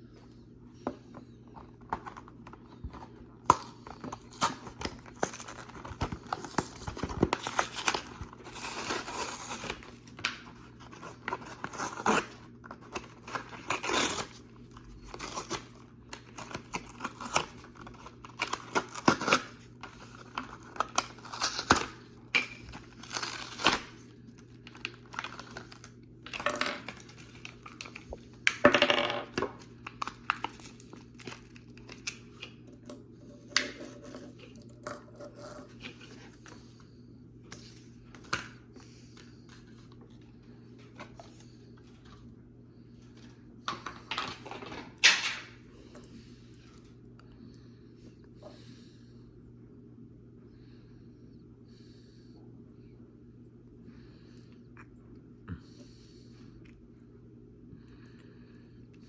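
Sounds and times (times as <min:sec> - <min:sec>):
faint low hum: 0:00.0 - 0:59.0
packaging tearing and crinkling: 0:03.0 - 0:28.1, 0:29.6 - 0:32.5.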